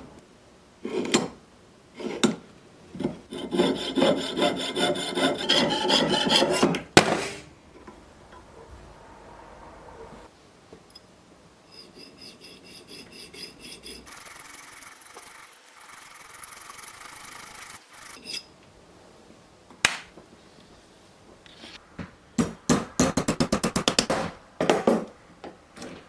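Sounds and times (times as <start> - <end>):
metal filing strokes: 3.0 - 7.4, 11.7 - 18.5.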